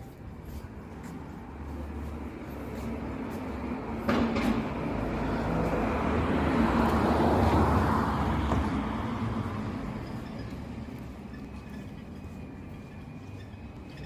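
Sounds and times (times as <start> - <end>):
vehicle passing by: 1.5 - 11.0.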